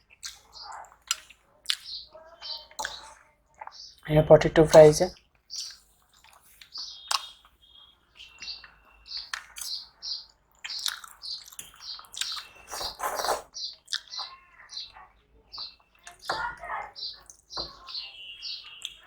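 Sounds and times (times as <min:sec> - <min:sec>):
crunching and chewing: 0:00.0 - 0:04.0, 0:05.3 - 0:07.6, 0:08.3 - 0:14.4
small bird chirping: 0:00.0 - 0:19.0.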